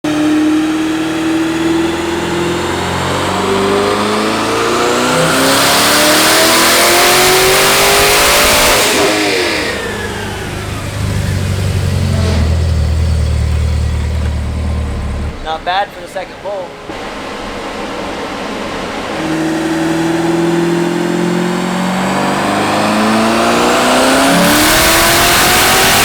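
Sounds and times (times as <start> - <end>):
car engine revving: 0.0 - 26.0
loud rushing hiss: 6.0 - 22.4.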